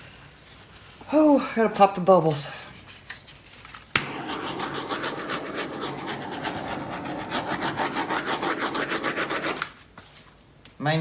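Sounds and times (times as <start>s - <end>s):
butane torch clicking alight: 3.8s - 9.8s
torch flame hissing: 3.8s - 9.8s.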